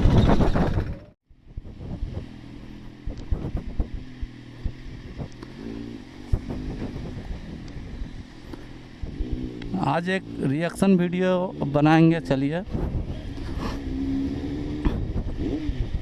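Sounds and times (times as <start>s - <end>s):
wind on microphone: 0.0s - 8.3s, 12.6s - 16.0s
engine running: 0.0s - 16.0s
motorcycle running: 0.0s - 16.0s
street traffic: 0.0s - 16.0s.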